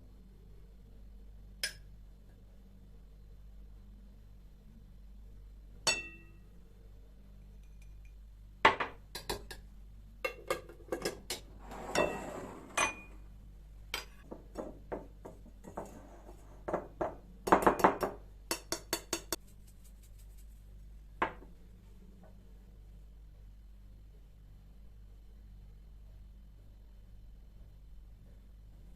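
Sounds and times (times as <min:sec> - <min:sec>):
dishes and utensils clinking: 0:10.3 - 0:13.2.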